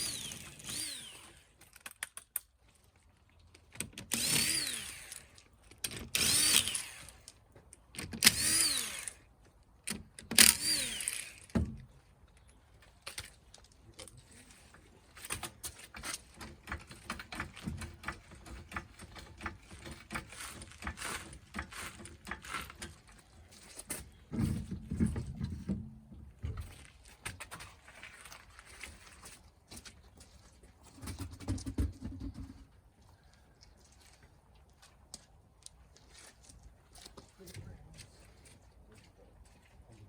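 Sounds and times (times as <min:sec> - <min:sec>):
power tool spinning up: 0:00.0 - 0:01.5, 0:04.1 - 0:05.3, 0:06.1 - 0:07.2, 0:08.2 - 0:09.2, 0:10.4 - 0:11.6.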